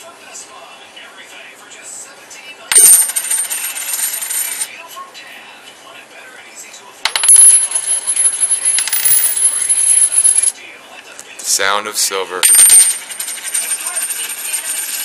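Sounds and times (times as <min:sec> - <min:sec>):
coins jingling and clinking: 0:02.7 - 0:04.7, 0:07.1 - 0:10.5, 0:12.4 - 0:15.0.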